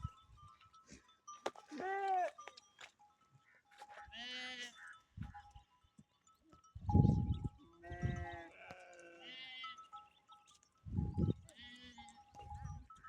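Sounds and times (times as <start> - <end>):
goat bleating: 4.0 - 4.9, 7.8 - 9.8, 11.5 - 12.2.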